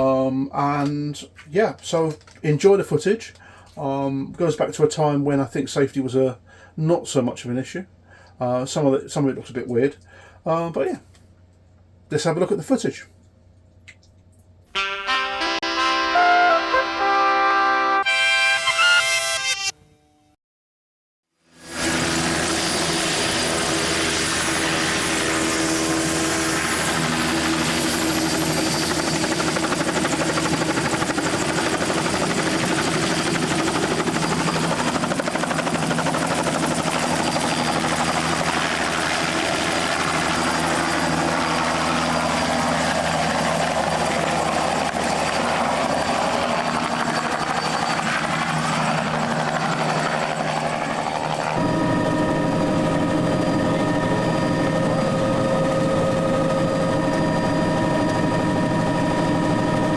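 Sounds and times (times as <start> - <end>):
helicopter engine and rotors: 21.6 - 59.9.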